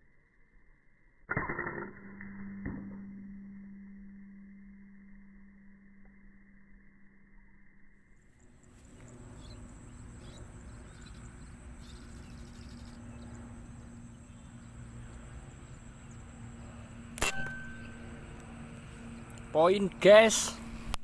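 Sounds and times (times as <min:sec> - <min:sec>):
low background noise: 0:04.7 - 0:21.0
air rifle shot: 0:17.2 - 0:18.3.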